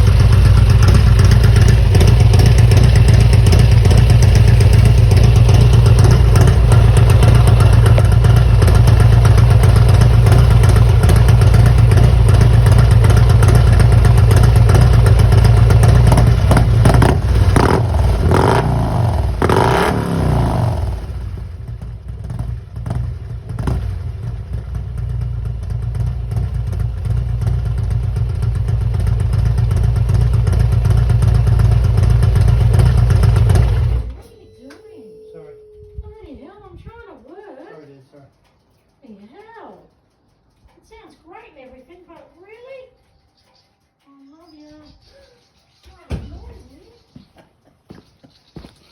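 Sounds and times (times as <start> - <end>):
motorcycle engine revving and idling: 0.0 - 34.3.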